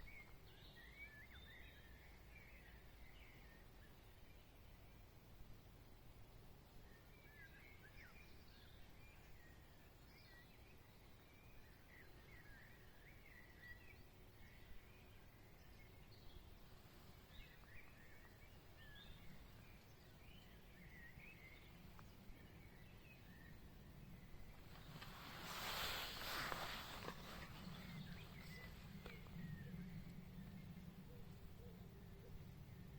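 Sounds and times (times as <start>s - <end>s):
songbirds chirping and twittering: 0.0s - 32.9s
low background rumble: 14.0s - 32.9s.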